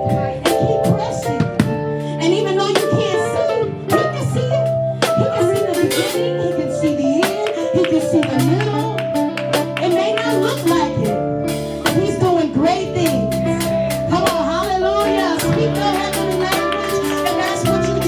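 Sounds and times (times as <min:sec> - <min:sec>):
gospel worship music: 0:00.0 - 0:18.0
keyboard chords: 0:00.0 - 0:18.0
drum hits: 0:00.1 - 0:02.0, 0:13.0 - 0:18.0.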